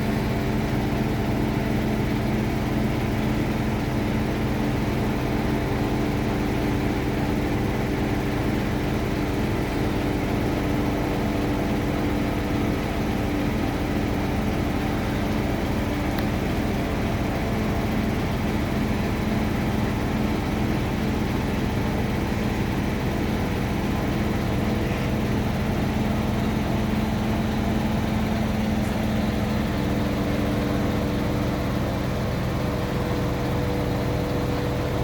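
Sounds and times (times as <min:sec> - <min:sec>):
large engine idling: 0:00.0 - 0:35.0
higher steady hum: 0:14.1 - 0:34.7.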